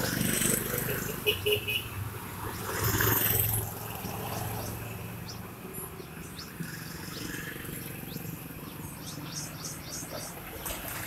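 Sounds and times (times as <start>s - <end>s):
small bird chirping: 3.6s - 10.5s.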